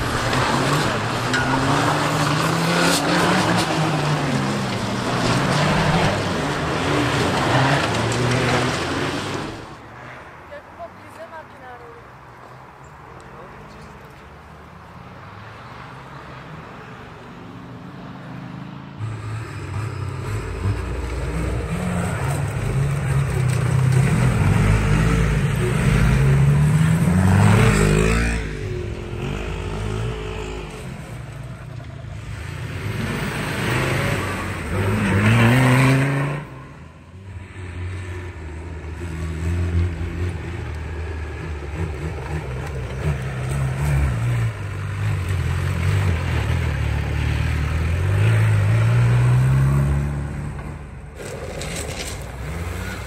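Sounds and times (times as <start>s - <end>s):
off-road vehicle engine revving: 0.0s - 9.7s, 19.0s - 31.3s, 32.1s - 36.8s, 38.9s - 53.0s.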